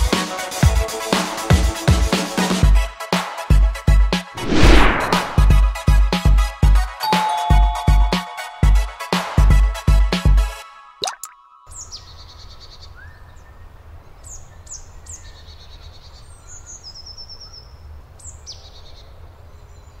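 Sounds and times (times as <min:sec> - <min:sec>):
rising swoosh: 0:04.4 - 0:05.6.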